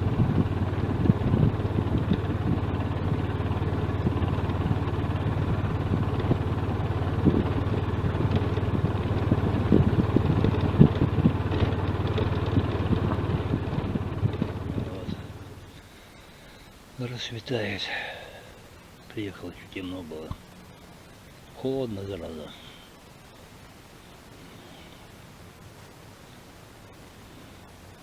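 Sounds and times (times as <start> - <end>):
car engine and road noise: 0.0 - 17.9, 18.6 - 28.0.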